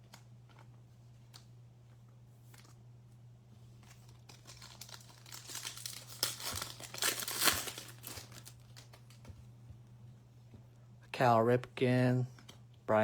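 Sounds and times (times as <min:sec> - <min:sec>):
low electrical hum: 0:00.0 - 0:13.0
wrapper tearing and crinkling: 0:04.1 - 0:09.2.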